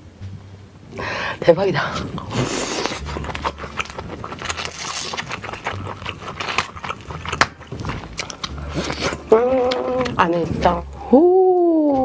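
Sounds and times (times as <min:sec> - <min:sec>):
crab shell cracking: 0:02.7 - 0:10.3.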